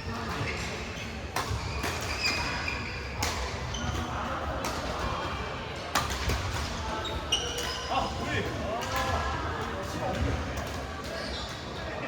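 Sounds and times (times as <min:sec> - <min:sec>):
shoes squeaking on court floor: 0:07.0 - 0:08.0.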